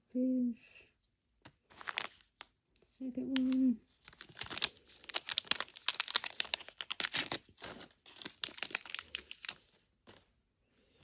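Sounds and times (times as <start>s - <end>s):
plastic packaging crinkling: 1.6s - 2.5s, 3.3s - 10.2s.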